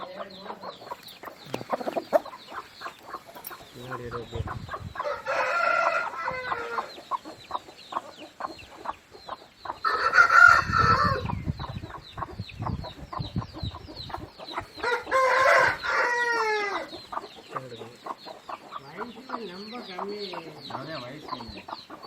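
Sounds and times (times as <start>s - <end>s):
rapid high-pitched bird calls: 0.0s - 22.0s
rooster crowing: 5.0s - 6.9s, 9.8s - 11.3s, 14.8s - 16.9s.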